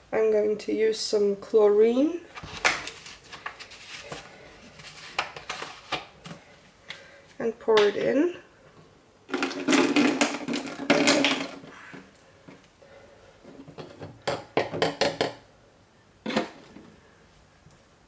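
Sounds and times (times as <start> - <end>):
liquid pouring into plastic bottle: 9.3 - 11.7.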